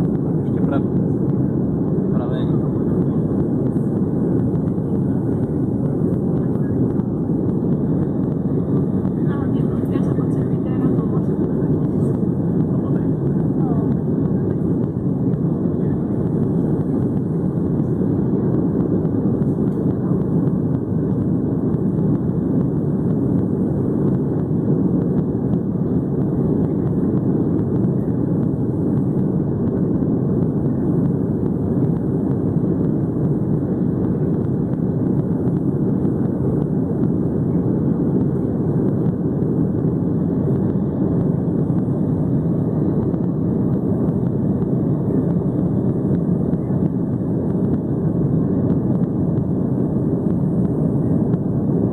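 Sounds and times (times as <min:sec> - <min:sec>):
jet engine cabin rumble: 0:00.0 - 0:51.9.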